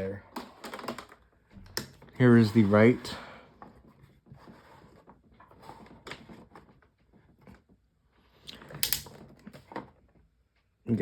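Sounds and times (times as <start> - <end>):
table fan clicking and rattling: 8.6 - 9.9.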